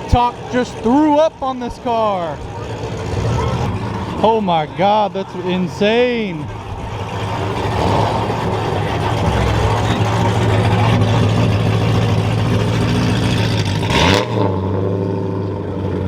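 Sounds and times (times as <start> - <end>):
car engine rumbling: 0.0 - 16.0
engine revving: 0.0 - 16.0.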